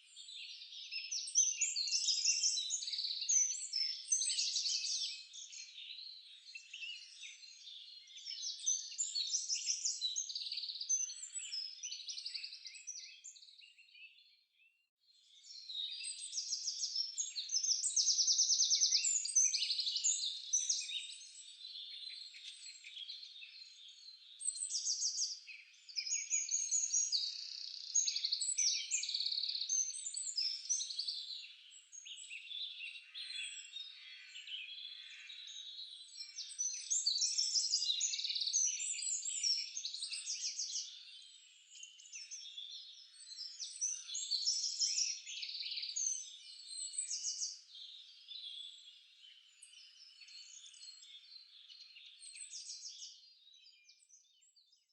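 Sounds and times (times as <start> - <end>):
songbirds singing: 0.0 - 54.9.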